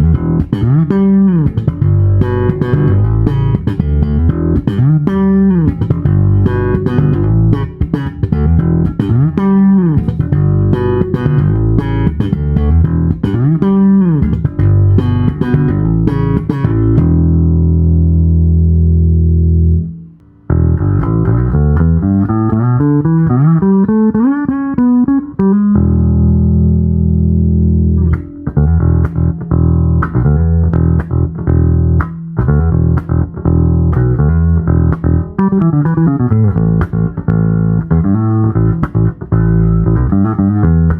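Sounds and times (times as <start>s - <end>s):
electric bass plucked notes: 0.0s - 40.9s.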